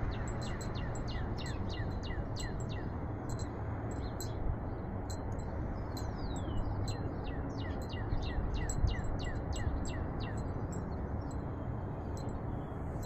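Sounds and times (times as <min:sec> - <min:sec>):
small bird singing: 0:00.0 - 0:04.4, 0:05.8 - 0:11.5.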